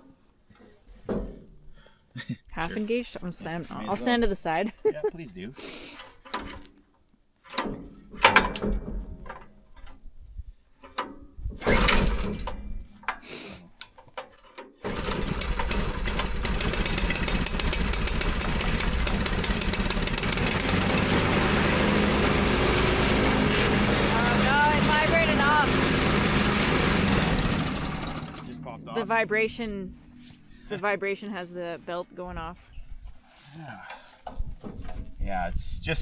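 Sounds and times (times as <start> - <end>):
recoil starter pulls: 14.6 - 28.6
small gasoline engine running: 14.8 - 28.6.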